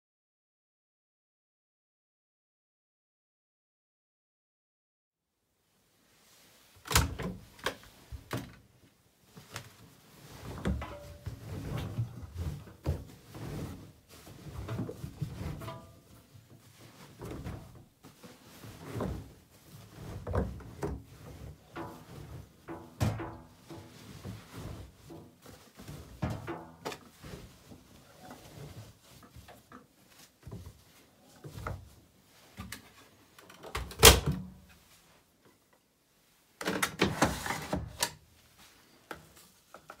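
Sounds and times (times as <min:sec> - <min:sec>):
washing machine knocks and clicks: 0:22.7 - 0:23.6.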